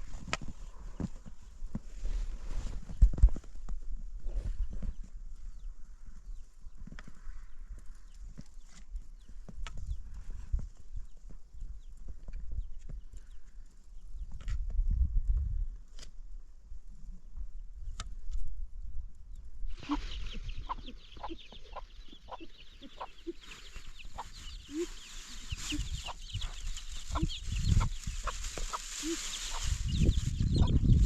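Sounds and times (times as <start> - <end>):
chickens clucking: 19.7 - 31.0
high-pitched chirping chorus: 19.8 - 31.0.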